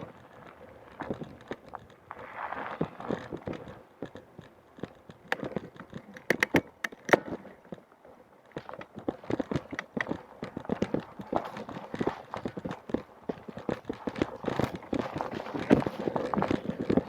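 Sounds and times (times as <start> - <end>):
sharp clicks and knocks: 3.0 - 7.9, 8.5 - 17.0.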